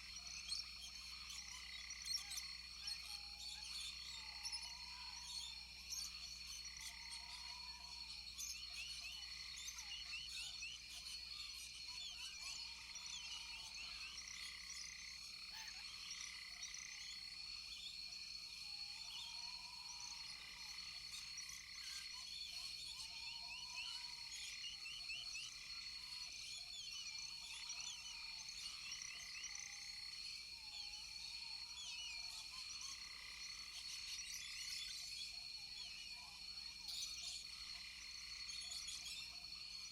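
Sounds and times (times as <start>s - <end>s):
high insect drone: 12.9s - 39.9s.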